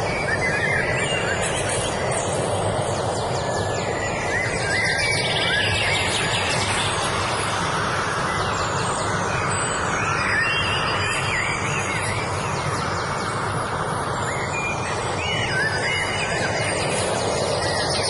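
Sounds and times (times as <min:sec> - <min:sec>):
birds singing: 0:00.0 - 0:18.0
steady rushing background noise: 0:00.0 - 0:18.0.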